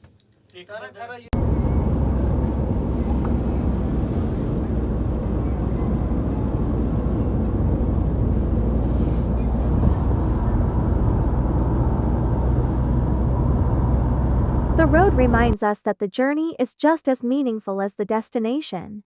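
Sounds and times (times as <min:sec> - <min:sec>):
car road and engine rumble: 0:01.4 - 0:15.6.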